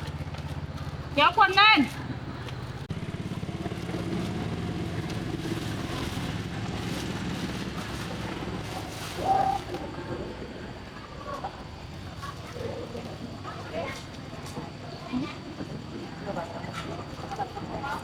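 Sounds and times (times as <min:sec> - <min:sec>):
small motorbike engine running: 0:00.0 - 0:09.9.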